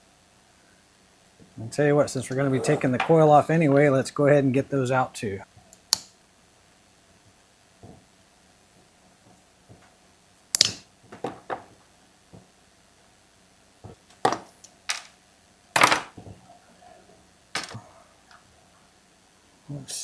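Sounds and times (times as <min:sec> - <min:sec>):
hand tools clicking and clinking: 0:17.6 - 0:17.8.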